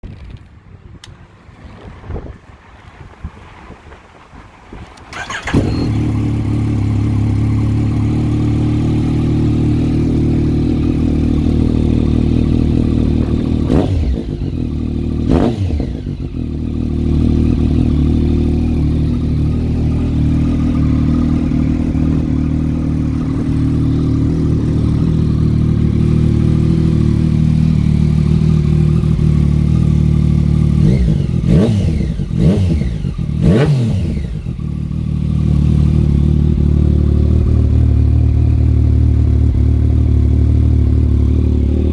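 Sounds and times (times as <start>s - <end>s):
motorcycle throttle blips: 4.9s - 41.9s
motorcycle engine idling: 5.1s - 41.9s.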